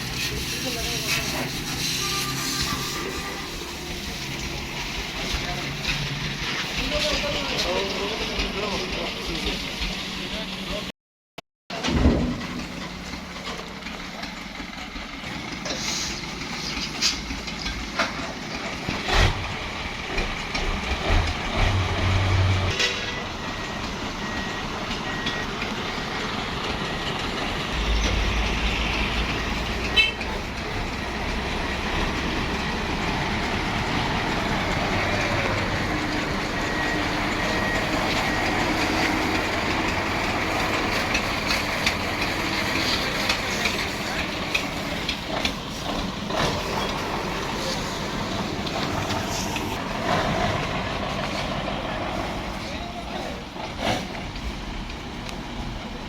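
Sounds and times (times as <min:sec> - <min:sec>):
heavy truck running: 0:00.0 - 0:10.9, 0:11.7 - 0:56.0
thin high whistle: 0:01.7 - 0:03.5.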